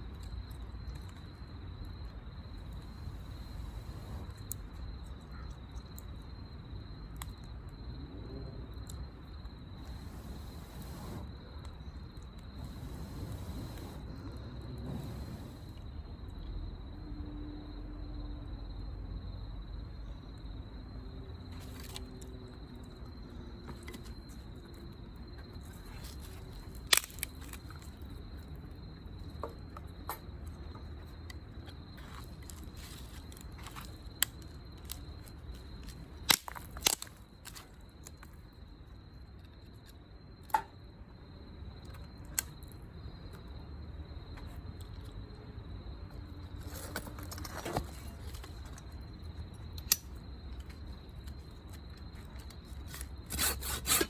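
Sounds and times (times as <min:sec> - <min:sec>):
high insect trill: 0:00.0 - 0:54.0
wood snapping and popping: 0:25.6 - 0:28.1, 0:32.0 - 0:38.3, 0:49.6 - 0:54.0.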